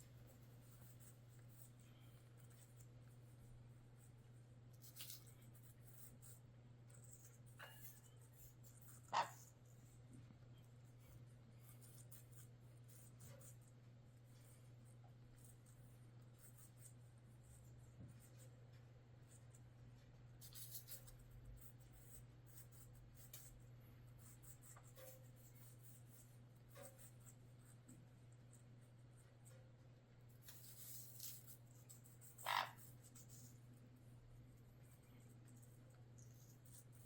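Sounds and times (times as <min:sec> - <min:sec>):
parrots crunching apple: 0:04.7 - 0:06.2, 0:07.0 - 0:09.6, 0:30.4 - 0:33.6
parrot chirp: 0:09.1 - 0:09.4, 0:32.4 - 0:32.8.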